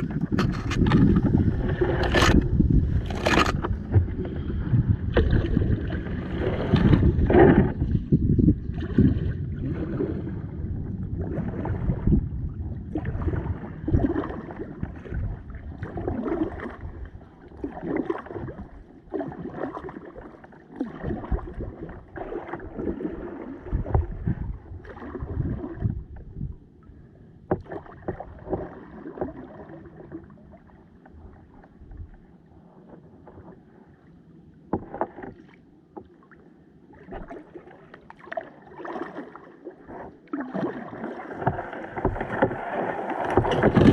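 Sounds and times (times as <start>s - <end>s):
low rumble: 0.0s - 13.6s
paddle splashing in water: 0.0s - 26.3s, 27.4s - 32.2s, 34.6s - 43.9s.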